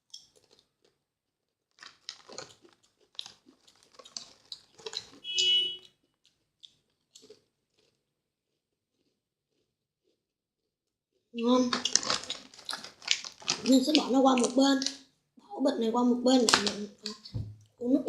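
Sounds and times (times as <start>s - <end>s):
chewing crunchy chips: 0.0s - 1.0s, 1.7s - 10.2s, 11.4s - 15.1s.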